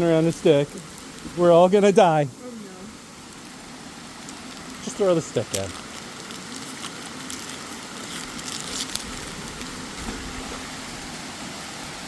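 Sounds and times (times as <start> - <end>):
waterfall rushing: 7.8 - 12.0.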